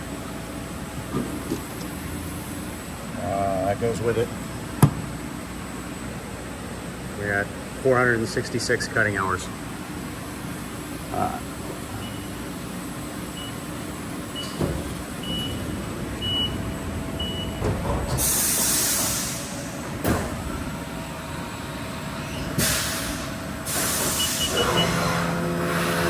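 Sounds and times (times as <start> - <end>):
machining center running: 0.0 - 26.0.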